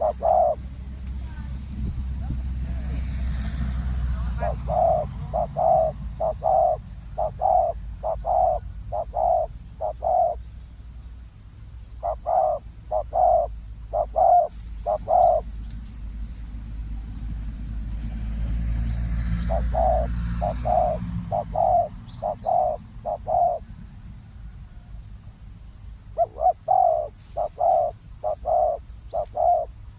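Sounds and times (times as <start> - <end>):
doves cooing: 0.0 - 10.4, 12.0 - 16.5, 19.1 - 23.7, 26.1 - 29.9
steady low rumble: 0.0 - 29.9.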